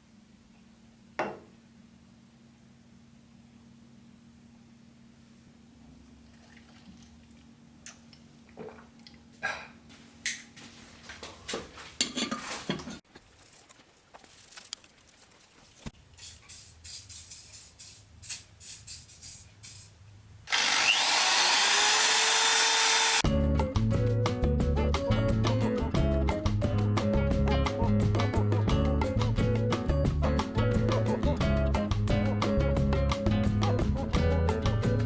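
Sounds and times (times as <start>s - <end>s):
loud steady machine noise: 20.5s - 23.2s.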